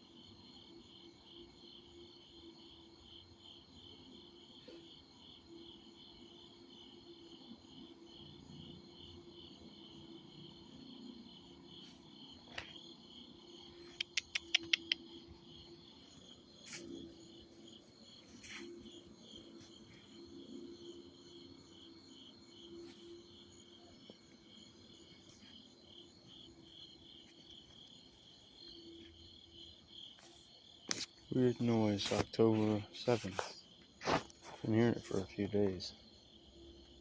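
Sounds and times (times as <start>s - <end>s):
crickets chirping: 0.0s - 37.0s
sharp clicks: 13.8s - 15.0s.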